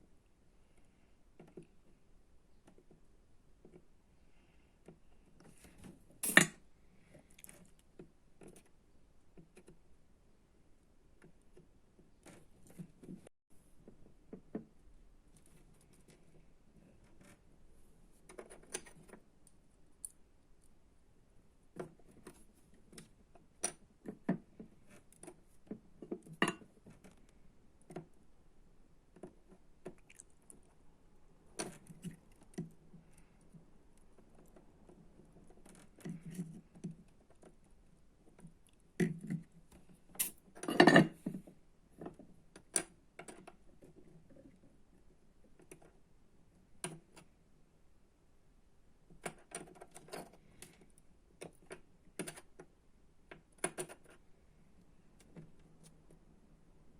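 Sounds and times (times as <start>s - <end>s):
small tools clattering on workbench: 40.2s - 41.4s.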